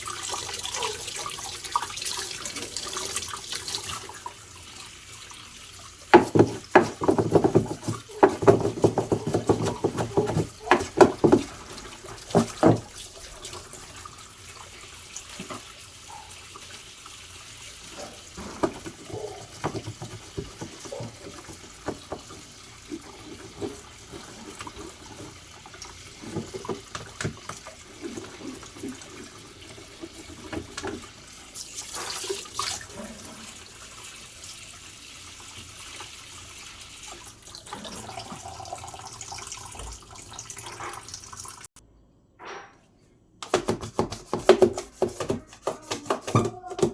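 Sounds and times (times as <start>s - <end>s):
water running and splashing: 0.0s - 41.7s
parts knocking and clattering: 6.1s - 12.9s, 18.2s - 25.4s, 43.4s - 46.9s.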